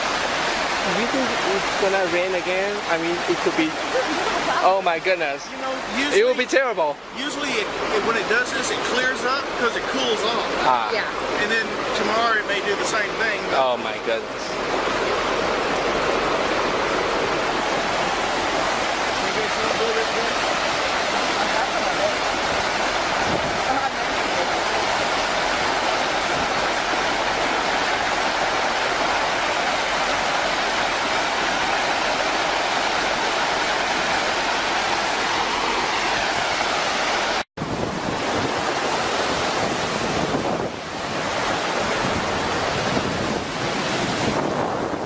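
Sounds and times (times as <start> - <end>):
floodwater rushing: 0.0 - 45.0
wind buffeting microphone: 22.2 - 30.6, 37.6 - 45.0.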